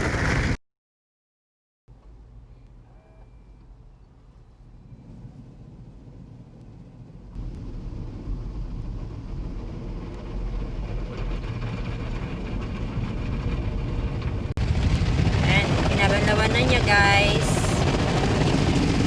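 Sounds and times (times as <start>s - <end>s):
car wash machine rumbling: 4.9s - 19.0s.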